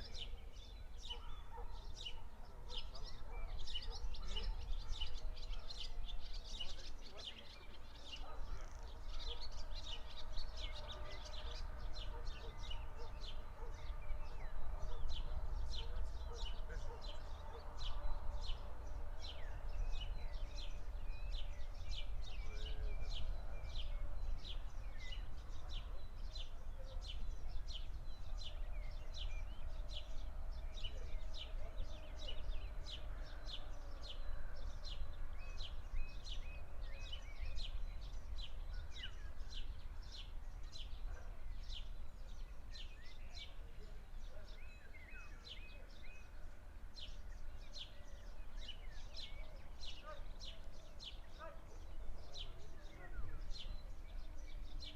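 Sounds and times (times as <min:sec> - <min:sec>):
bird chirping: 0:00.0 - 0:54.9.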